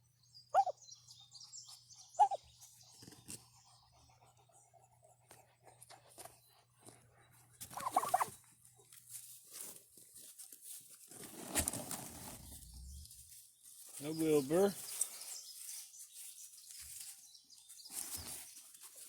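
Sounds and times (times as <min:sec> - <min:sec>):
rustling and scraping: 0:05.3 - 0:19.0.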